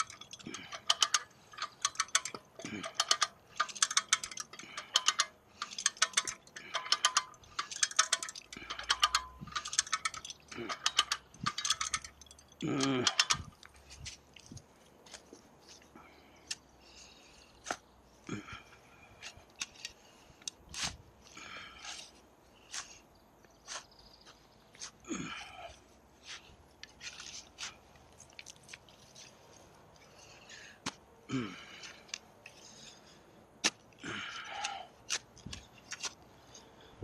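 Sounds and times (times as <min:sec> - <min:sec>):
ratchet tool clicking: 0:00.0 - 0:13.5.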